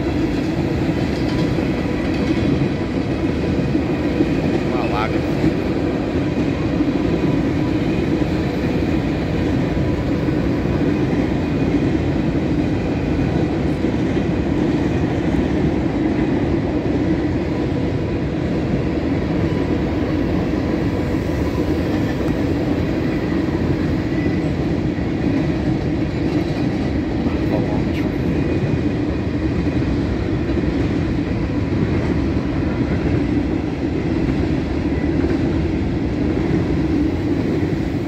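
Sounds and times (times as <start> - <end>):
steel wheels rumbling on rail: 0.0 - 38.0.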